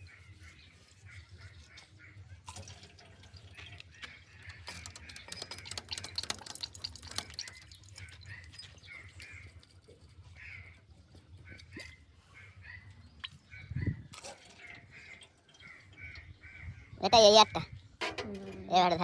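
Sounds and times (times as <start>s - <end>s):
liquid dripping and splashing: 2.4s - 9.8s
small irregular clicks: 3.6s - 9.5s.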